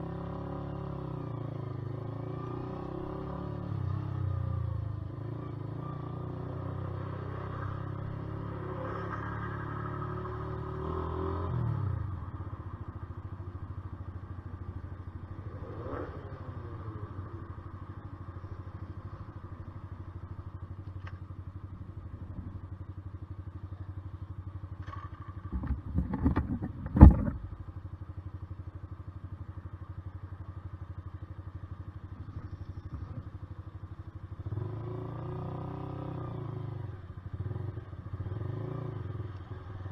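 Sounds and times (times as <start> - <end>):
motorcycle engine running: 11.8 - 39.9
knocks: 25.5 - 27.7
loud thump: 25.5 - 27.7.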